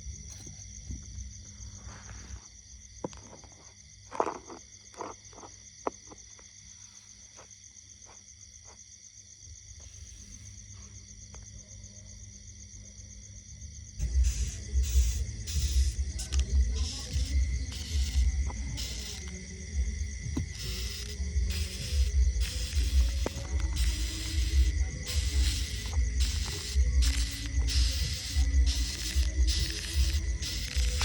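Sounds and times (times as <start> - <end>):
insects trilling: 0.0 - 31.0
sharp clicks: 14.0 - 19.5, 20.4 - 31.0.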